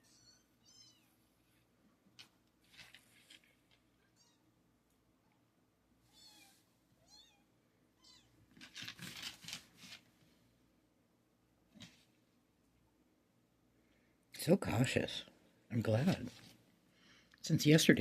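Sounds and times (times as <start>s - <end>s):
rustling noise: 2.2s - 4.1s, 8.5s - 10.4s, 15.9s - 16.6s.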